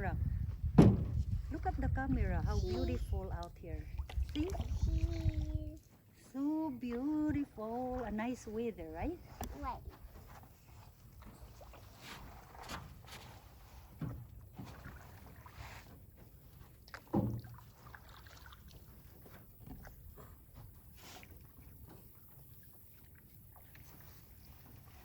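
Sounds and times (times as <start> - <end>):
paddle splashes: 0.8 - 25.0
small taps on canoe: 13.9 - 17.9, 19.2 - 22.2.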